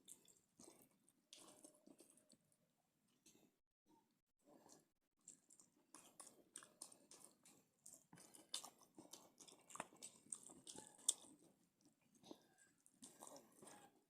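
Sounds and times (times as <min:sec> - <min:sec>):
person chewing wetly: 0:00.0 - 0:02.5, 0:04.4 - 0:14.0.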